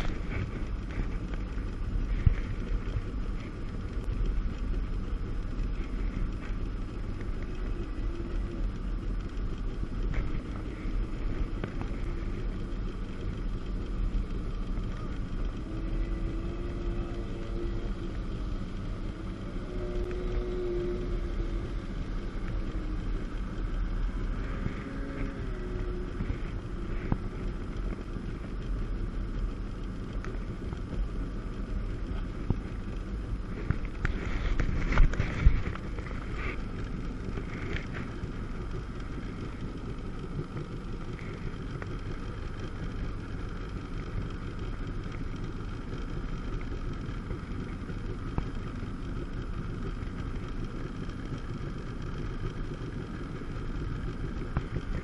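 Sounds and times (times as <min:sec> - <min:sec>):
rush of noise: 0:00.0 - 0:04.7, 0:17.9 - 0:43.2
jet ski engine running: 0:00.0 - 0:55.0.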